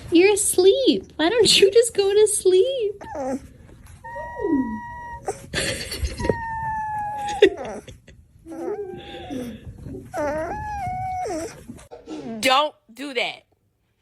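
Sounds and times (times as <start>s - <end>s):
dog howling: 4.0s - 5.4s.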